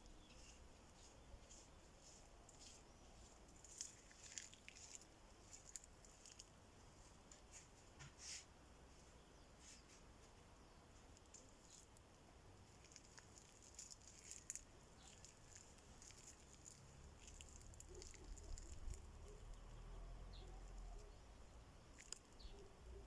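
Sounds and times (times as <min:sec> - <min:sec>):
faint rustles and ticks: 0:00.0 - 0:23.0.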